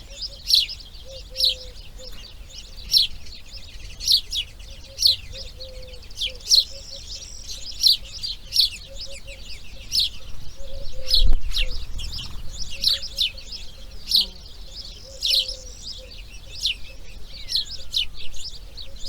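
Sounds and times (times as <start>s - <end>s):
bird chirping: 0.0s - 19.0s
ticking bird calls: 11.1s - 14.4s.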